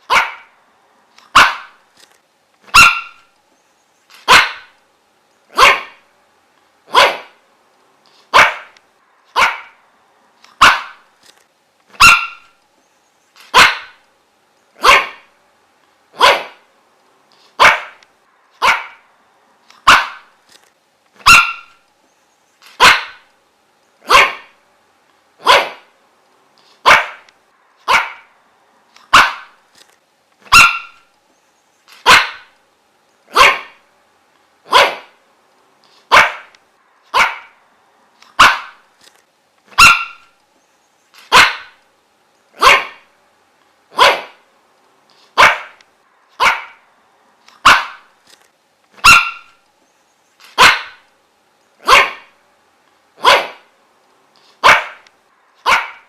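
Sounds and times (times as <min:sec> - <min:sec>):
dog barking: 0:00.0 - 0:00.6, 0:01.3 - 0:01.8, 0:02.7 - 0:03.3, 0:04.2 - 0:04.8, 0:05.5 - 0:06.0, 0:06.9 - 0:07.4, 0:08.3 - 0:09.8, 0:10.6 - 0:11.0, 0:12.0 - 0:12.6, 0:13.5 - 0:14.0, 0:14.8 - 0:15.3, 0:16.2 - 0:16.7, 0:17.6 - 0:18.0, 0:18.6 - 0:19.1, 0:19.8 - 0:20.3, 0:21.2 - 0:21.8, 0:22.8 - 0:23.3, 0:24.0 - 0:24.6, 0:25.4 - 0:25.9, 0:26.8 - 0:28.3, 0:29.1 - 0:29.6, 0:30.5 - 0:31.1, 0:32.0 - 0:32.5, 0:33.3 - 0:33.8, 0:34.7 - 0:35.2, 0:36.1 - 0:36.5, 0:37.1 - 0:37.6, 0:38.4 - 0:38.8, 0:39.8 - 0:40.3, 0:41.3 - 0:41.8, 0:42.6 - 0:43.1, 0:43.9 - 0:44.4, 0:45.4 - 0:45.8, 0:46.4 - 0:46.8, 0:47.6 - 0:48.1, 0:49.0 - 0:49.6, 0:50.6 - 0:51.0, 0:51.8 - 0:52.4, 0:53.2 - 0:53.7, 0:54.6 - 0:55.0, 0:55.6 - 0:56.0.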